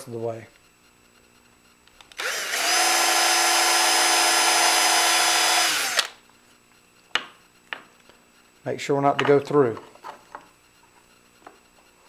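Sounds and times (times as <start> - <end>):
electric drill drilling wood: 2.2 - 6.2.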